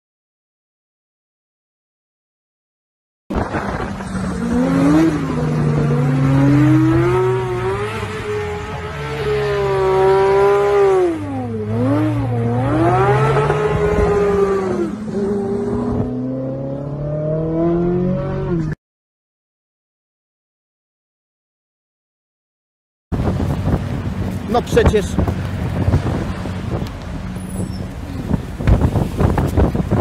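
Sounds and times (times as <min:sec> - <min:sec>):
sports car engine revving: 0:03.4 - 0:18.8.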